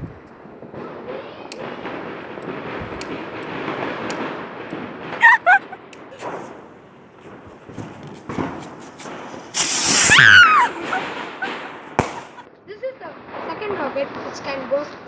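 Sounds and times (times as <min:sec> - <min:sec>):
firecrackers popping and banging: 0:00.0 - 0:12.6, 0:13.2 - 0:15.0
dog yelping: 0:05.2 - 0:05.8, 0:10.0 - 0:11.5
steady hiss: 0:06.2 - 0:12.4.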